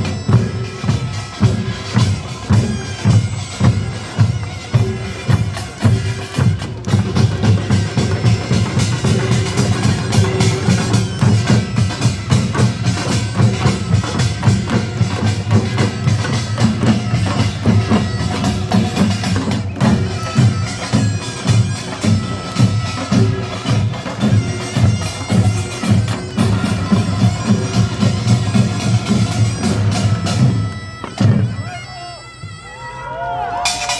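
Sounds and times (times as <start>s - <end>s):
drums and small gongs beating: 0.0s - 32.5s, 33.5s - 33.9s.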